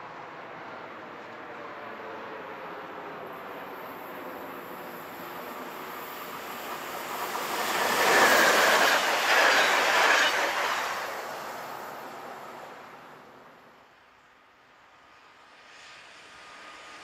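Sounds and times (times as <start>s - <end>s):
train wheels rushing on rail: 0.8s - 13.8s.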